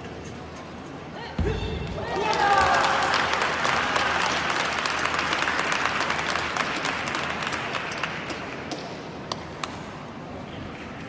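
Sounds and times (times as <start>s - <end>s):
crowd applauding: 2.0s - 8.6s.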